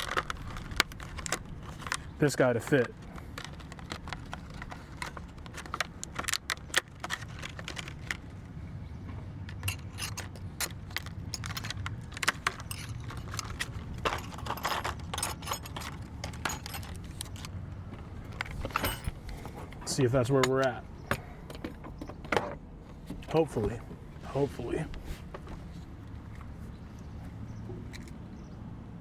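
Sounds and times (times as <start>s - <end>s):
metal parts clicking and clinking: 0.0s - 22.6s.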